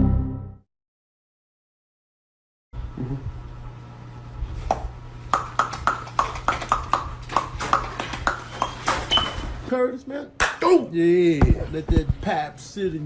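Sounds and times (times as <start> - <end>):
steady low hum: 2.8 - 8.5.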